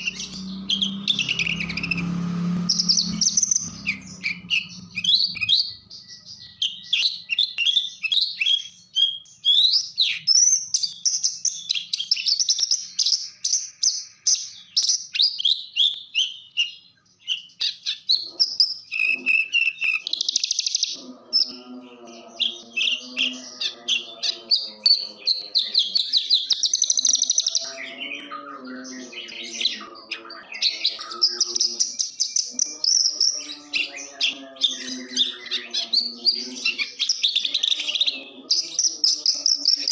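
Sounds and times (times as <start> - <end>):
low pulsing sound: 0.0 - 6.2
bird singing chirps and trills: 0.0 - 39.9.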